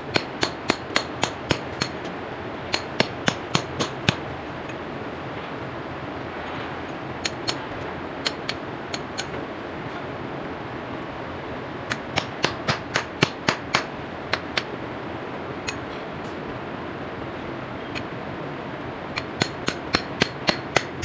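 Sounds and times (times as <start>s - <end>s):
hammer striking steel chisel: 0.1s - 2.0s, 2.7s - 4.2s, 11.9s - 14.7s, 19.2s - 21.0s.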